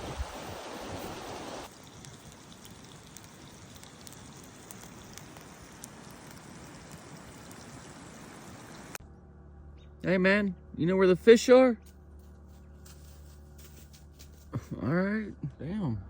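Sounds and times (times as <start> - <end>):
river water rushing: 0.0 - 1.7.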